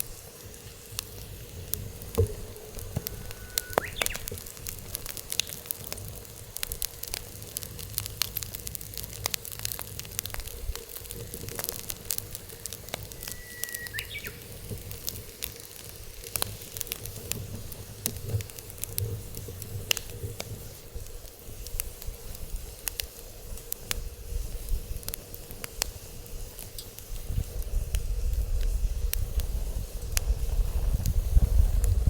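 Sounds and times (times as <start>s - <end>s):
wood fire crackling: 0.0s - 32.0s
thin whistle: 2.3s - 4.6s, 12.4s - 14.7s.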